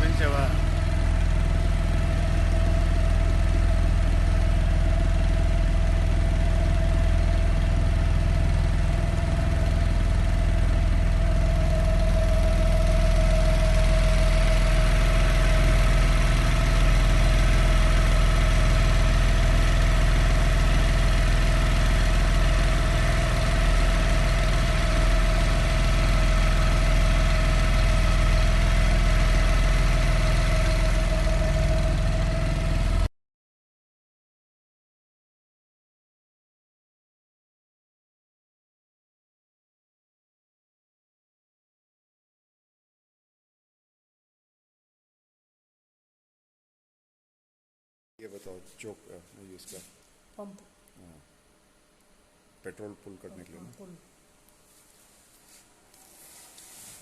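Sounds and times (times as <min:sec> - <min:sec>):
outboard motor running: 0:00.0 - 0:33.1.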